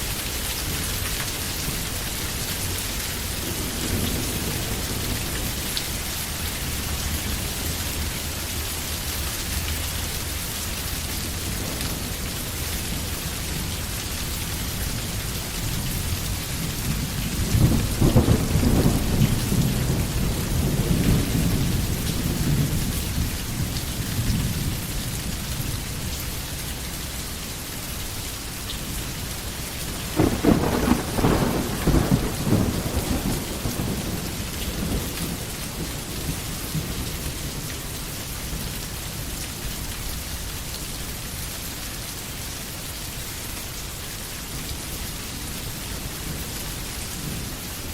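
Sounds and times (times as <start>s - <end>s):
steady rain falling: 0.0s - 47.9s
thunder rolling: 16.6s - 22.8s, 30.0s - 37.0s.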